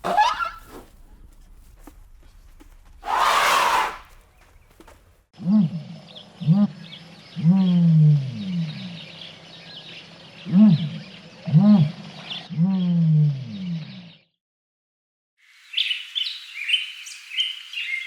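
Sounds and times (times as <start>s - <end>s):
animal calls: 0.0s - 0.8s, 3.0s - 4.1s.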